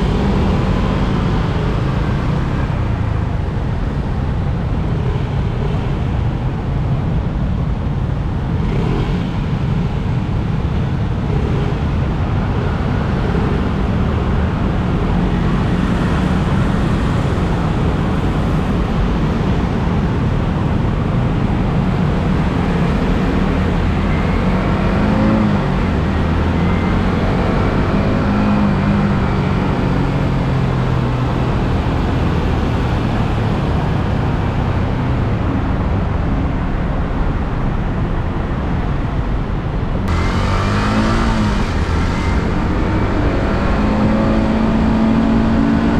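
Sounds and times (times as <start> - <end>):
wind rushing on microphone: 0.0 - 45.9
motorcycle engine: 39.4 - 45.9.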